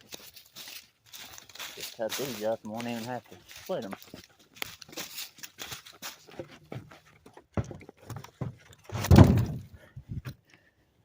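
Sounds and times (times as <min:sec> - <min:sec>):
crackling and rustling: 0:00.0 - 0:09.7
heavy low thump: 0:09.0 - 0:09.7.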